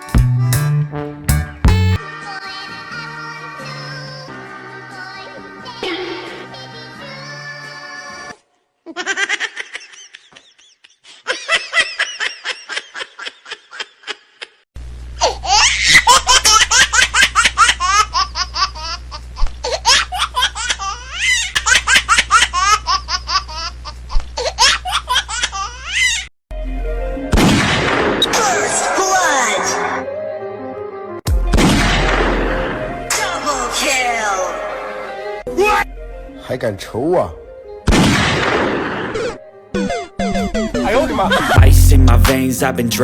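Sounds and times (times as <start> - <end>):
noisy sound with music: 0.0 - 2.8, 40.5 - 43.0
child laughing: 8.9 - 14.6, 15.2 - 26.3
low hum: 41.6 - 43.0.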